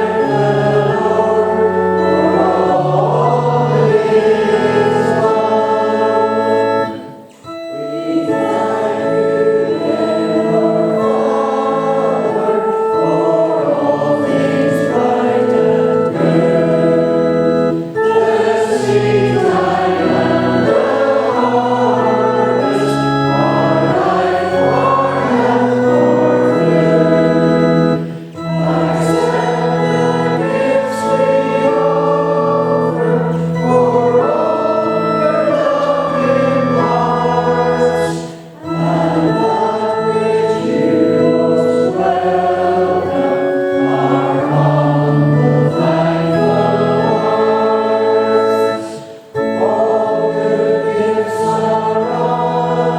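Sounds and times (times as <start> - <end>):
many voices singing a hymn: 0.0 - 52.9
organ accompaniment: 0.0 - 52.9.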